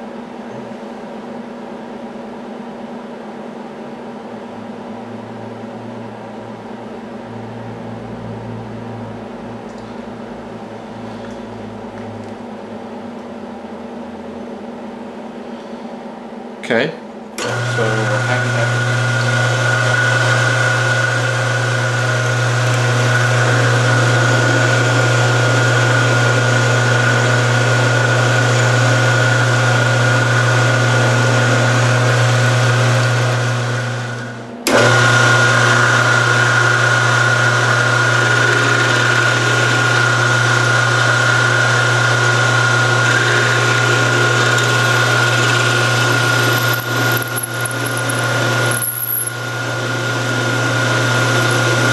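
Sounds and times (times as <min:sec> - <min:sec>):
lathe motor hum with whine: 0:17.4 - 0:51.9.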